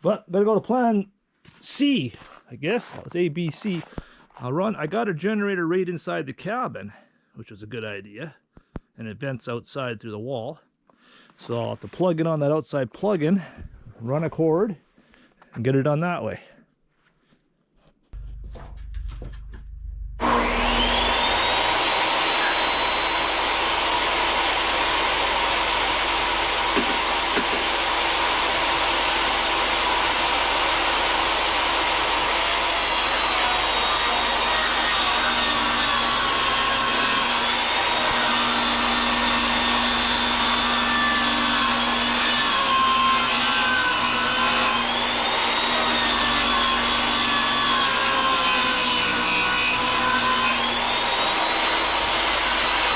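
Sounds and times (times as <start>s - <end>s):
saw blade cutting wood: 20.2s - 52.9s
table saw motor whining: 20.2s - 52.9s.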